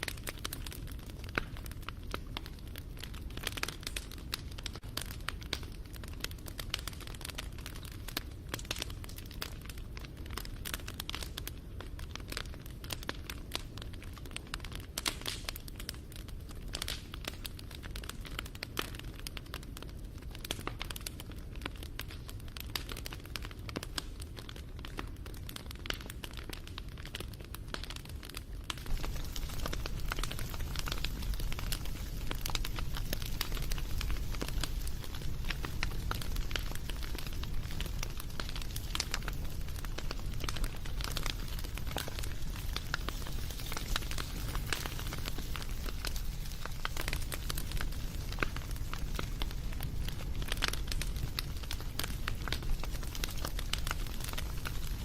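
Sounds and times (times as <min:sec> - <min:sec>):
bonfire pops and snaps: 0:00.0 - 0:55.0
rush of flames: 0:26.6 - 0:55.0.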